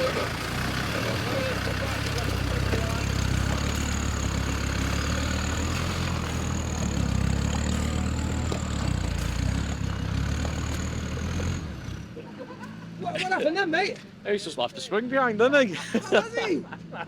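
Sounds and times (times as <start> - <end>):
truck engine at low revs: 0.0 - 13.1.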